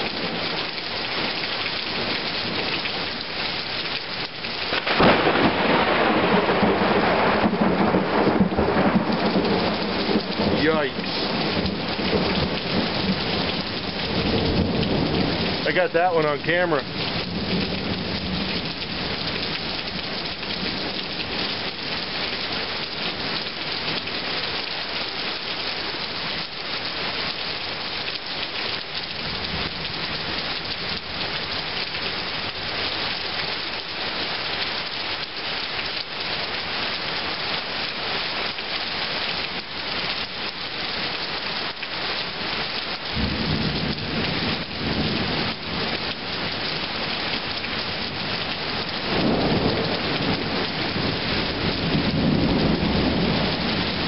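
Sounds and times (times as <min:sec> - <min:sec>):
heavy rain pouring: 0:00.0 - 0:54.0
thunder rumbling: 0:04.7 - 0:20.0, 0:43.2 - 0:45.9, 0:49.0 - 0:54.0.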